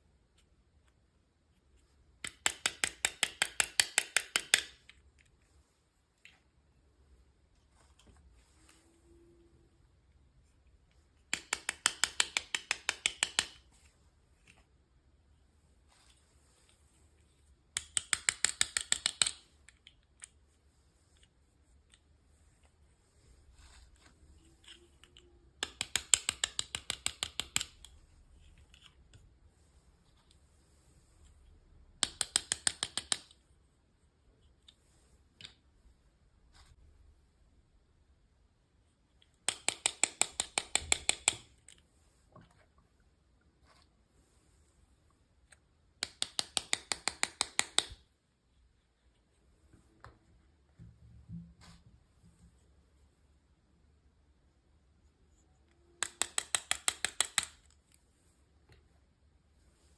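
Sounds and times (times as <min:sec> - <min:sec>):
plastic toy packaging clicking: 0:56.0 - 0:57.8.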